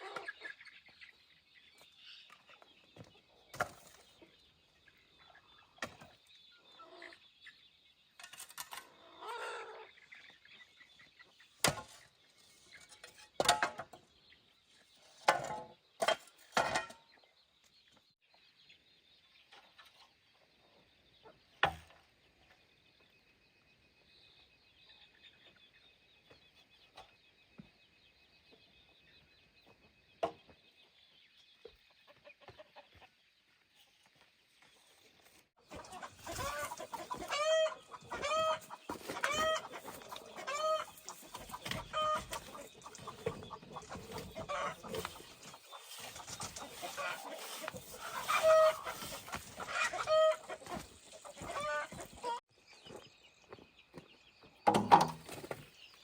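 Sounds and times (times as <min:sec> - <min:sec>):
chickens clucking: 0:00.0 - 0:07.6, 0:08.2 - 0:17.3, 0:28.5 - 0:33.6, 0:35.6 - 0:56.0
sharp knocks: 0:54.7 - 0:55.3.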